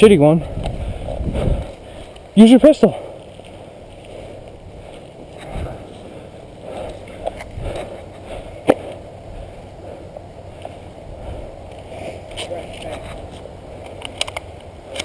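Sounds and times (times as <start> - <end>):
sharp clicks: 13.8 - 15.0.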